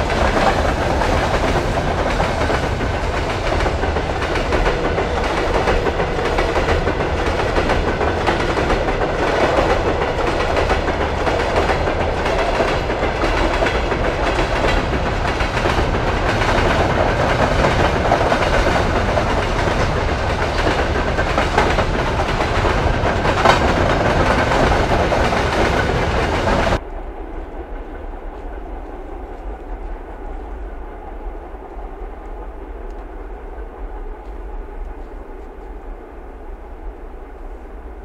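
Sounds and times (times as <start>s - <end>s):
steel wheels rattling on rails: 0.0s - 26.9s
distant train rumble: 0.0s - 38.0s.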